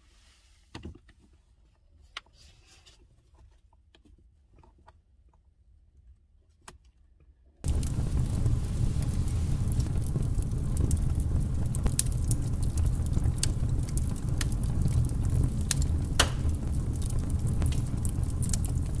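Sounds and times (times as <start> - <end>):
fire crackling pops and snaps: 7.6 - 19.0
low steady rumble: 7.6 - 19.0.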